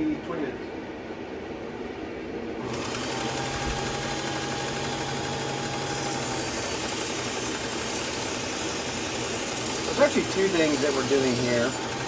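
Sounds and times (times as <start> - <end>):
motor hum: 0.7 - 12.0
knife grinding on belt: 5.9 - 12.0.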